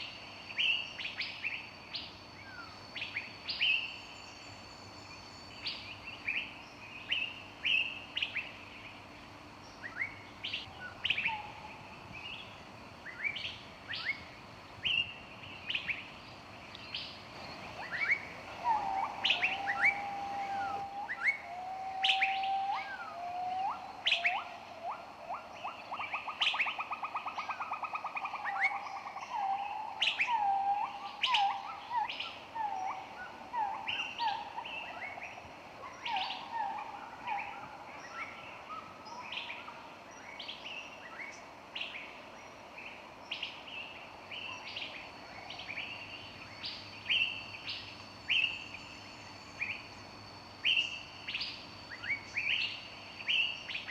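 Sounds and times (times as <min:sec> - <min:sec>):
birds chirping: 0:15.0 - 0:28.5
low whistled bird notes: 0:17.3 - 0:27.4
fast bird trill: 0:17.4 - 0:21.4.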